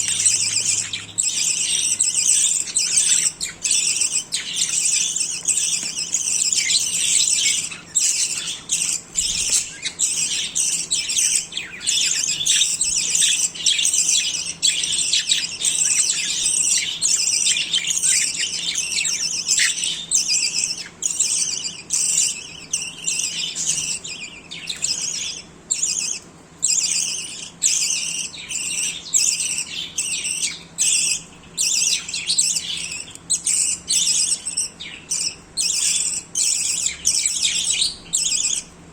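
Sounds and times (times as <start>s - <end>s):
budgerigars chattering: 0.0s - 38.7s.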